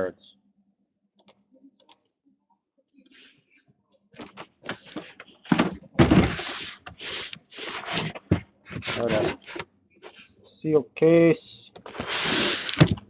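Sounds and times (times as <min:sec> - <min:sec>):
cardboard and plastic rustling: 0:04.2 - 0:09.6, 0:11.8 - 0:13.0.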